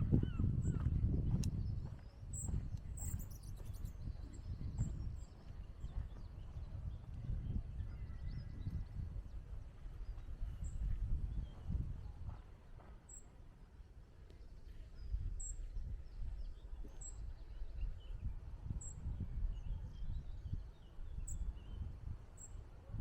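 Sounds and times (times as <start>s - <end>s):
wind gusting on the microphone: 0.0s - 13.2s, 14.1s - 23.0s
faint bird chirps: 2.3s - 5.8s.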